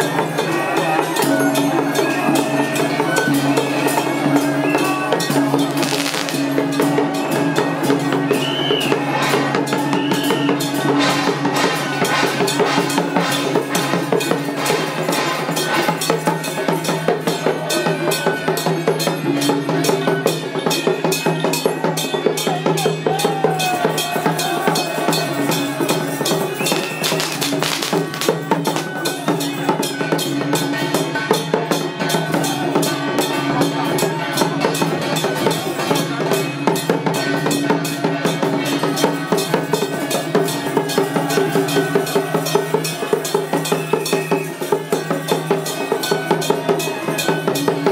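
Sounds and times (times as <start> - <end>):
rapid drum beating: 5.6 - 7.0, 25.3 - 29.8.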